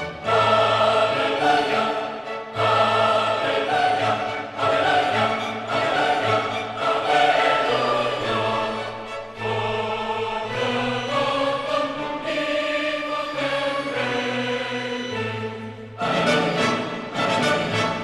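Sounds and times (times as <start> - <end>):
choir-like voices: 0.0 - 18.0
orchestral chords: 0.0 - 18.0.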